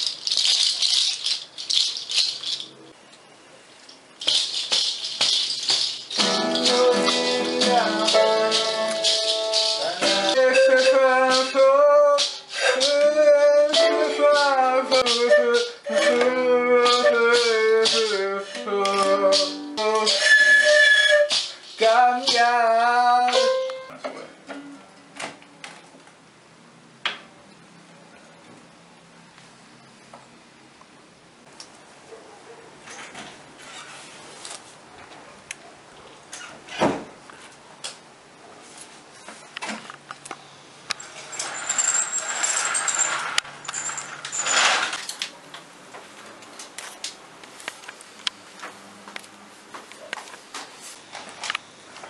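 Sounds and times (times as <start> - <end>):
breathy pan flute notes: 12.5 - 21.8
roller shutter slats rattling: 41.0 - 45.2
shutter closing clatter: 42.3 - 45.3.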